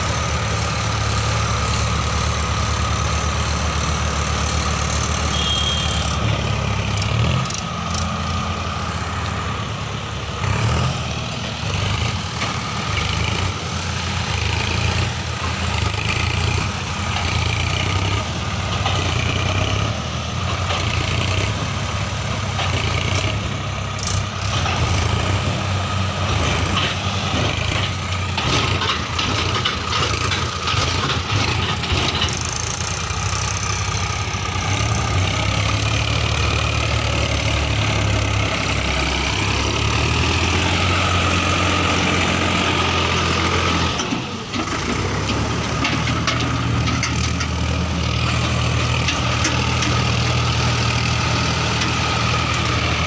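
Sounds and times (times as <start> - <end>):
heavy diesel engines running: 0.0 - 53.0
knocks and rattles: 26.2 - 33.0, 43.8 - 52.3.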